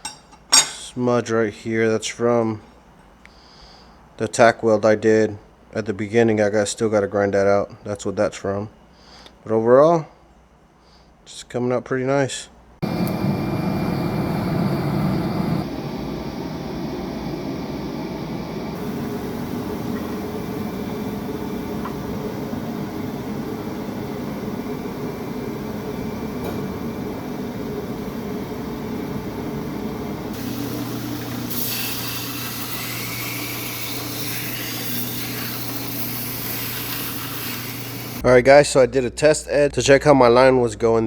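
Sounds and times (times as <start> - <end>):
high hiss: 12.8 - 38.2
low motor hum: 12.8 - 38.2
workshop machinery running: 12.8 - 38.2.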